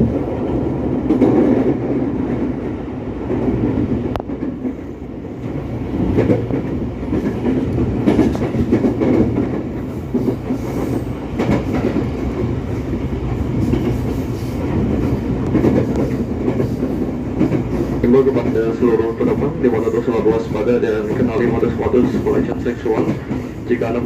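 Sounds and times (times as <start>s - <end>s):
train wheels rumbling: 0.0s - 24.0s
wheels clacking over rail joints: 5.4s - 24.0s.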